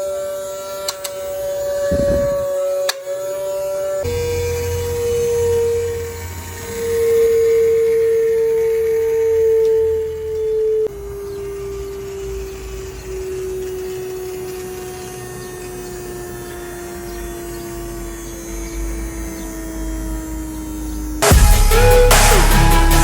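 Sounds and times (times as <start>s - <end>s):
hobby motor whining: 0.0s - 21.4s
loud electronic music: 21.2s - 23.0s.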